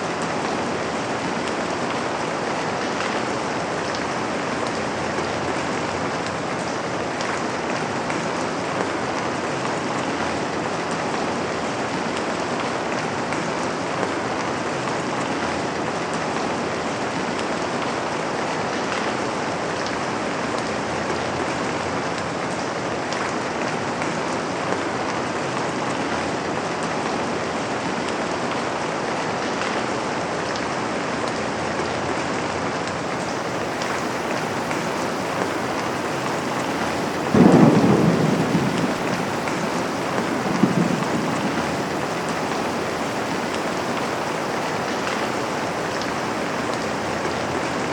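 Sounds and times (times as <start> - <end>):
steady rain falling: 0.0 - 47.9
thunder rumbling: 33.0 - 47.9.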